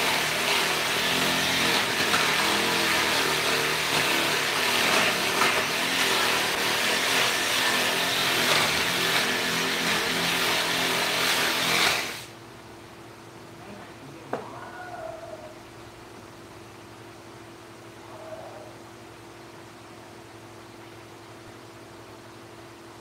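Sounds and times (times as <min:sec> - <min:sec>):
electric power tool cutting wood: 0:00.0 - 0:12.3
faint hum: 0:12.3 - 0:23.0.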